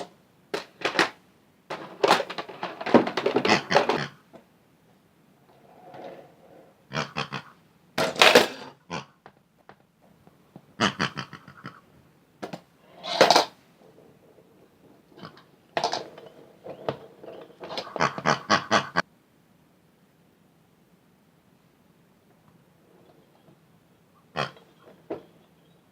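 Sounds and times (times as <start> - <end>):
squeaky pig oinks and grunts: 3.4 - 4.3, 6.8 - 7.6, 8.6 - 9.2, 10.8 - 11.9, 15.1 - 15.5, 17.3 - 19.0, 24.2 - 25.0.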